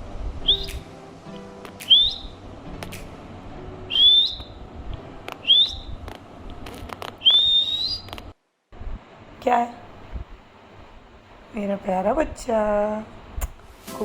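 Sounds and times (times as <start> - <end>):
parrot whistling: 0.4 - 0.8, 1.8 - 2.4, 3.9 - 4.6, 5.4 - 6.0, 7.2 - 8.2.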